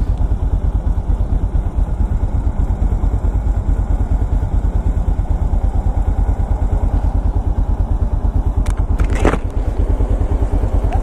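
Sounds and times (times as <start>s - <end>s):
motorcycle engine idling: 0.0s - 11.0s
brief clatter: 8.6s - 9.6s.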